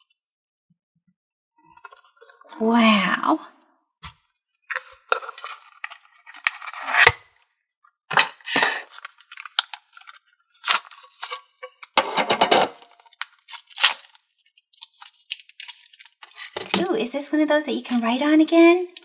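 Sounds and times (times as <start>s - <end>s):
putty crackling and snapping: 13.0s - 14.2s, 14.8s - 16.5s.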